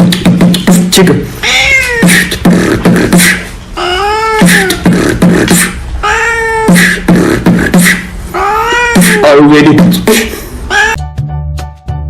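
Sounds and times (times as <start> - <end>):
beatbox rhythm: 0.0 - 11.0
meow-like vocal call: 1.4 - 2.2, 3.8 - 4.8, 6.0 - 6.9, 8.4 - 9.3, 10.7 - 11.0.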